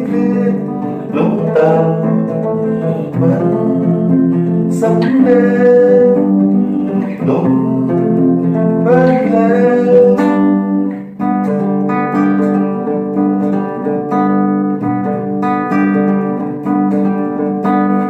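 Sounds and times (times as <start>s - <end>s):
flamenco acoustic guitar: 0.0s - 18.0s.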